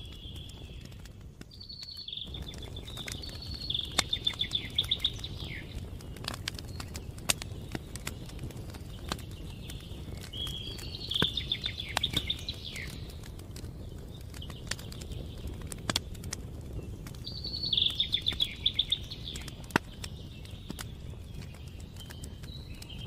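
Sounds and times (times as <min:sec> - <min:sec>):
campfire crackling: 0:00.0 - 0:23.0
songbird trilling: 0:01.6 - 0:05.8, 0:10.3 - 0:13.1, 0:17.3 - 0:19.6.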